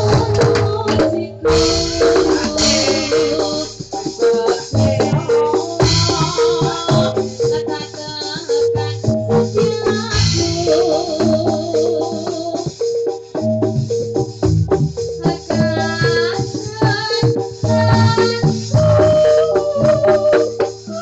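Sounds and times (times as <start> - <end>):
electronic organ melody: 0.0 - 21.0
quick percussion strikes: 0.0 - 21.0.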